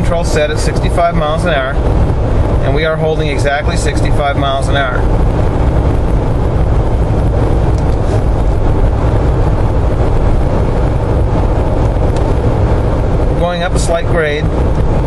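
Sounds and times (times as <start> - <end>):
in-cab road and engine drone: 0.0 - 15.0.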